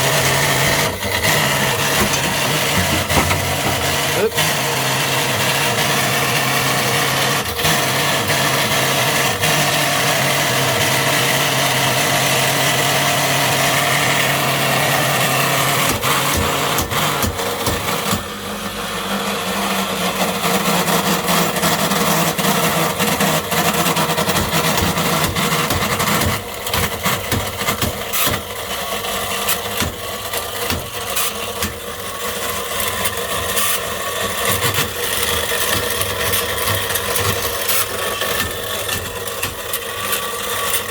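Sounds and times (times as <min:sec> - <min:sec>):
clatter of clicks and knocks: 0:00.5 - 0:04.2, 0:34.7 - 0:40.9.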